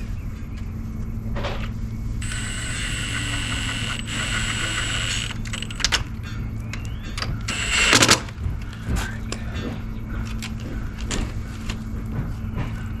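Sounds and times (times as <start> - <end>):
low steady hum: 0.0 - 13.0
power tool motor whining: 2.2 - 6.1, 7.5 - 8.4
scraping rattle: 2.2 - 6.4, 7.5 - 8.4.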